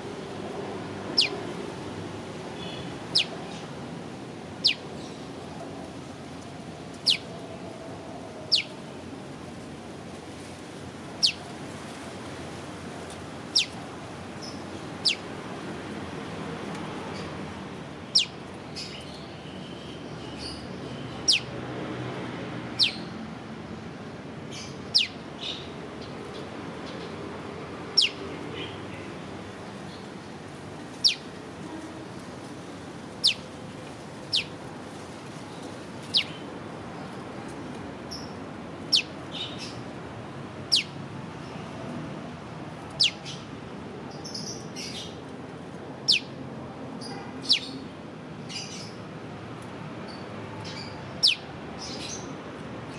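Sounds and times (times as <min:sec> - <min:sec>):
faint bird chirps: 0:07.0 - 0:07.2.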